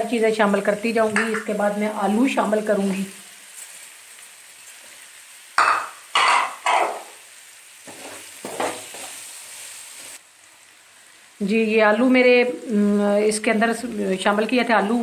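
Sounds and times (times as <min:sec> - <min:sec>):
food sizzling in oil: 0:00.0 - 0:15.0
wooden spatula scraping wok: 0:07.8 - 0:10.2.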